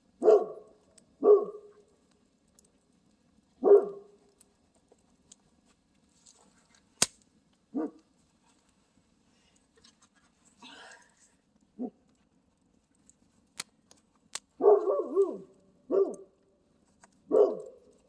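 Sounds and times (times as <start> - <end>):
dog barking: 0.2 - 1.8, 3.6 - 4.2, 7.7 - 8.0, 14.6 - 16.3, 17.3 - 17.9
sharp snap: 7.0 - 7.2.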